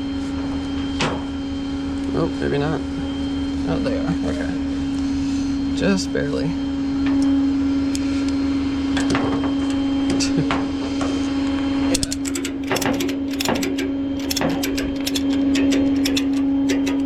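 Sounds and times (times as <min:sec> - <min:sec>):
truck mechanical hum: 0:08.6 - 0:17.0
ratchet strap clicking: 0:12.0 - 0:17.0.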